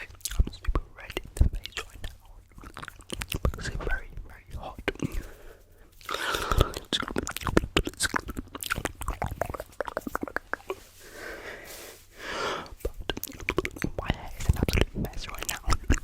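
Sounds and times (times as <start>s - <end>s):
wet mouth clicks: 0.0s - 3.8s, 6.0s - 10.8s, 12.6s - 16.0s
breathy hissing: 5.2s - 6.9s, 10.8s - 12.8s.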